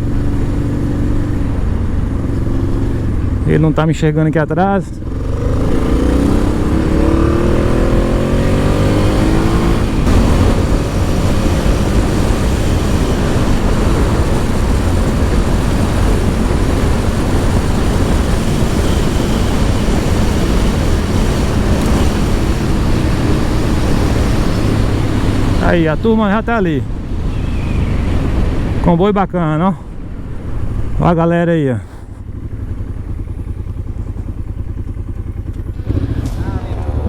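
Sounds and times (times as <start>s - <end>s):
motorcycle engine revving: 0.0s - 37.0s
wind noise on microphone: 5.1s - 29.0s.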